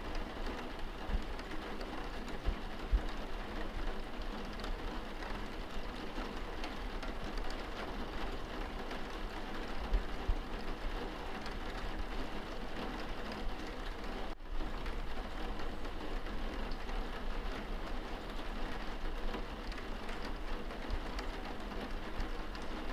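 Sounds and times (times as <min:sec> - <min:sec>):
rain on window glass: 0:00.0 - 0:22.9.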